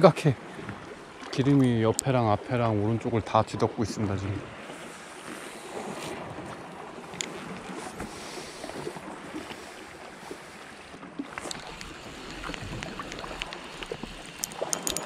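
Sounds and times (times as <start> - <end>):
water lapping against rocky shore: 0.0 - 15.0
fishing reel ticking: 11.4 - 15.0.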